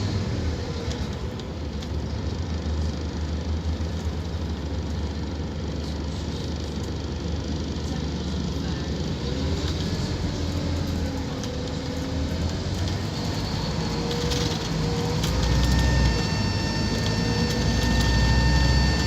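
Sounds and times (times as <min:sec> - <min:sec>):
bus diesel engine accelerating: 0:00.0 - 0:19.0.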